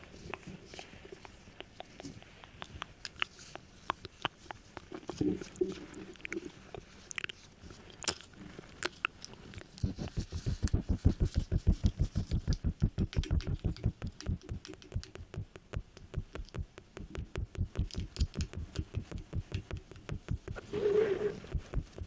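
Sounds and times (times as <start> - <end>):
low-pitched tapping pulses: 9.8 - 20.7, 21.4 - 22.0.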